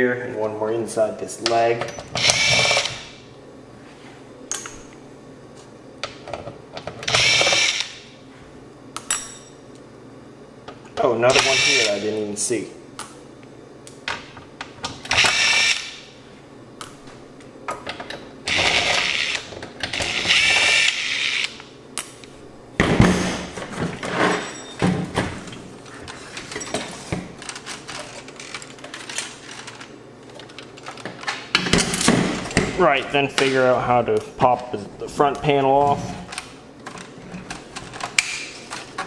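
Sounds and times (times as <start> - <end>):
electric screwdriver whirring: 2.2 - 3.0, 7.1 - 8.0, 11.3 - 12.0, 15.1 - 16.0, 18.5 - 19.4, 20.0 - 21.6.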